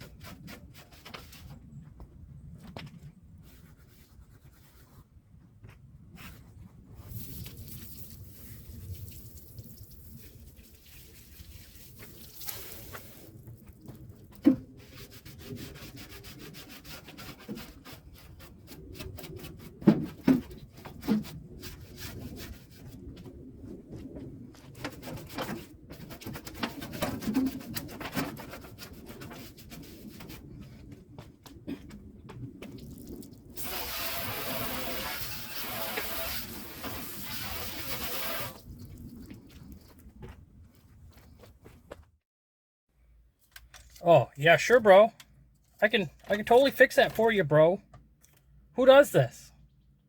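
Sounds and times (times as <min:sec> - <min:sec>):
hand scraping on metal: 0:24.8 - 0:30.5, 0:33.6 - 0:38.6.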